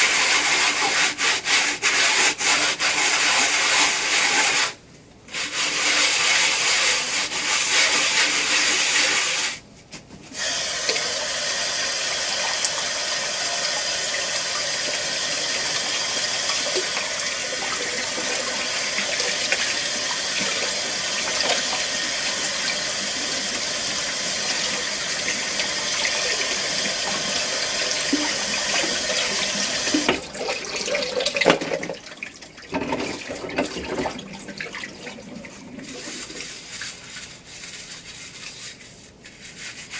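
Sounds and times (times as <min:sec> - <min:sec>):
running water: 0:10.4 - 0:39.9.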